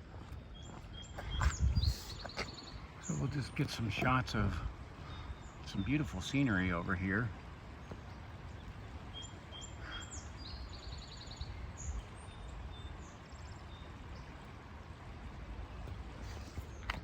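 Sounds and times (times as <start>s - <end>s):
steady low rumble: 0.0s - 9.5s
small birds calling: 0.0s - 17.0s.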